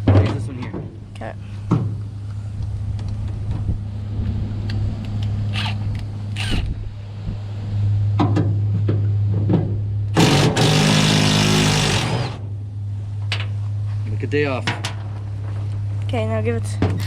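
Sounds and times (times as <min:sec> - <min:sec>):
steady low hum: 0:00.0 - 0:17.0
power tool running: 0:10.2 - 0:12.6.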